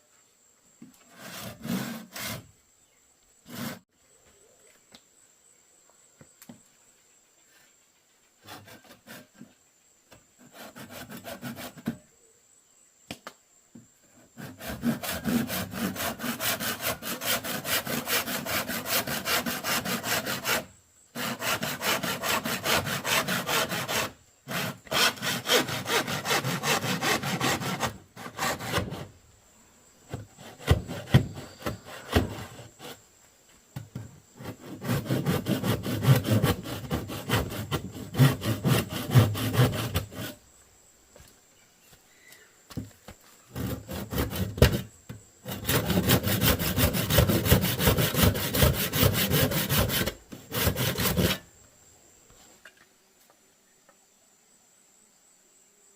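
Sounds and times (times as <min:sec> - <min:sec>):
hand saw cutting bamboo: 0:01.1 - 0:02.5, 0:03.5 - 0:03.8, 0:10.4 - 0:12.0, 0:14.3 - 0:29.1, 0:30.1 - 0:33.0, 0:34.4 - 0:40.4, 0:43.5 - 0:44.8, 0:45.4 - 0:51.5.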